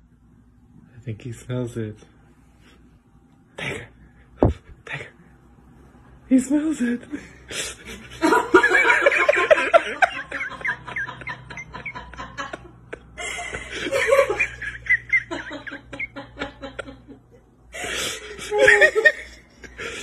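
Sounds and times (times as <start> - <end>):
person laughing breathily: 12.5 - 14.2, 17.7 - 20.0.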